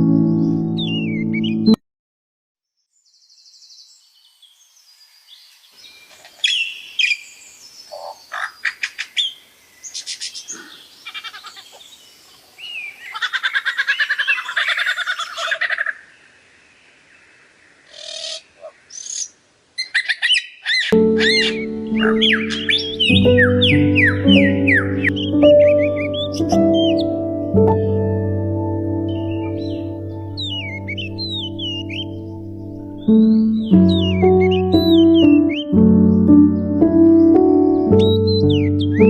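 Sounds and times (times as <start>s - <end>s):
rapid pulsed trilling calls: 20.8s - 27.2s.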